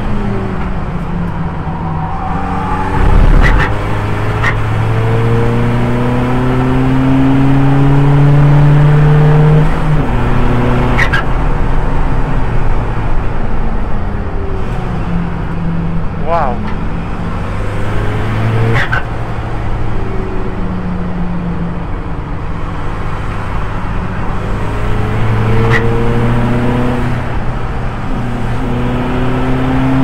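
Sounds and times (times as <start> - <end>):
race car engine accelerating: 1.7 - 11.2
loud low thump: 2.9 - 4.0.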